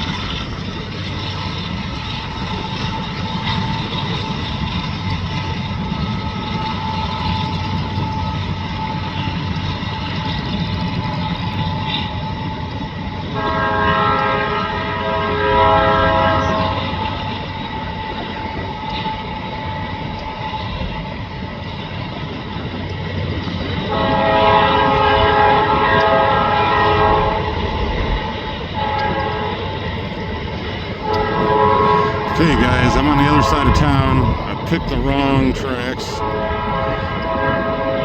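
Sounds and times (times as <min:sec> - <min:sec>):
passing train rumble: 0:00.0 - 0:38.0
locomotive air horn blasts: 0:13.4 - 0:16.8, 0:31.1 - 0:34.7.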